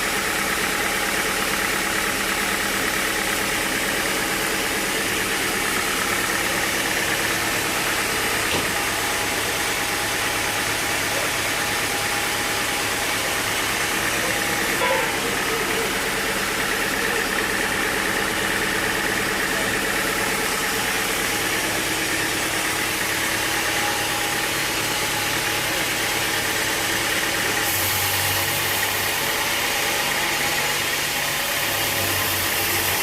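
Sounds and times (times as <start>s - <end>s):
engine running: 0.0s - 33.0s.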